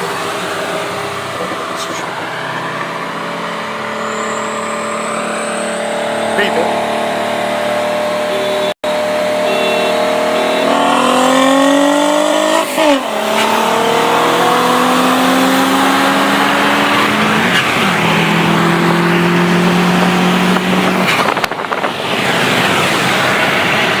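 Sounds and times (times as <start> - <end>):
car engine pulling hard: 0.0 - 24.0.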